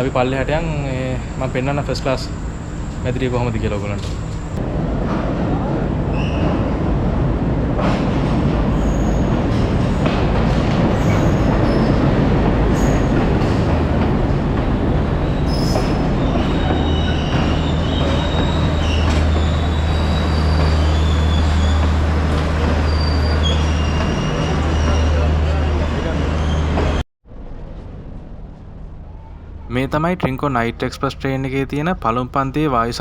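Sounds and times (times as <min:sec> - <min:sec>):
train carriages rumbling on rails: 0:00.0 - 0:30.6
wheel squeals: 0:06.1 - 0:06.8, 0:08.7 - 0:13.8, 0:15.2 - 0:27.0.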